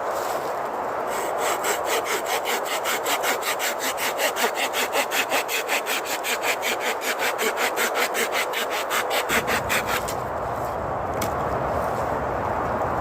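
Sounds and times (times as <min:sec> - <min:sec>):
saw cutting wood: 0:01.1 - 0:10.2.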